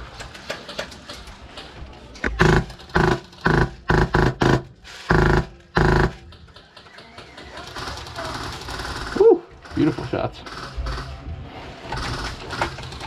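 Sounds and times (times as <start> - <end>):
airsoft machine gun bursts: 2.2 - 9.9.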